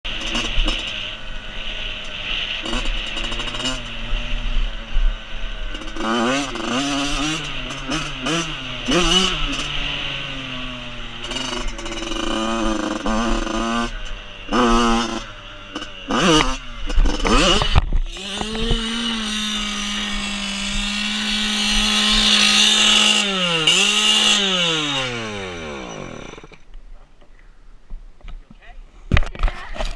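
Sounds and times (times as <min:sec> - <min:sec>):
dirt bike engine revving: 0:00.1 - 0:26.7.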